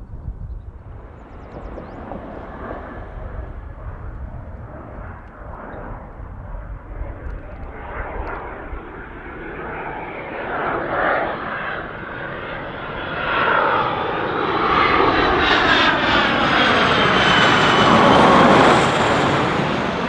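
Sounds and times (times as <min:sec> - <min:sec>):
jet engine rumble: 0:00.0 - 0:20.0.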